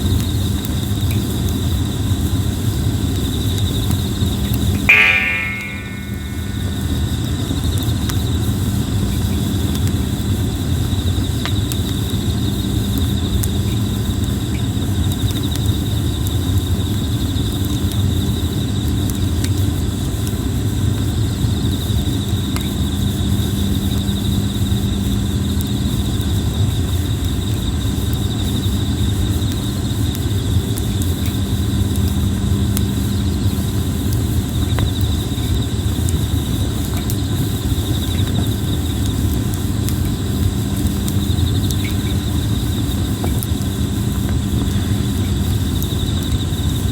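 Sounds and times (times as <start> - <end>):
insects trilling: 0.2 - 46.9
campfire crackling: 21.8 - 46.9.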